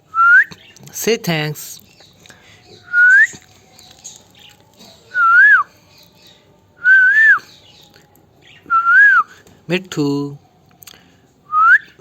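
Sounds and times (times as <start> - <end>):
rising and falling whistles: 6.8 - 7.4, 8.7 - 9.3, 11.5 - 12.0.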